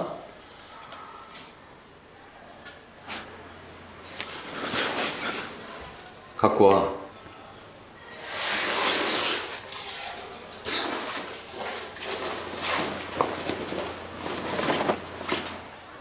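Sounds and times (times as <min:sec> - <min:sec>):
clothes and backpack rustling: 0:03.0 - 0:06.3, 0:08.1 - 0:16.0.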